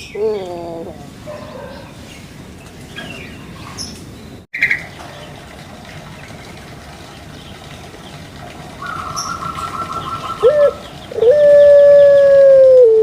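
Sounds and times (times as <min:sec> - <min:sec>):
rapid bird trill: 0:06.1 - 0:12.2
dove cooing: 0:08.7 - 0:13.0.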